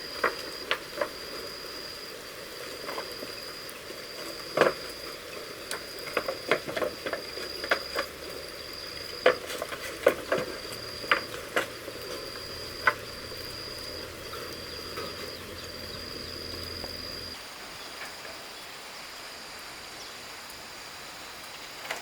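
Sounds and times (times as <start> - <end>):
high-pitched insect call: 0.0 - 21.8.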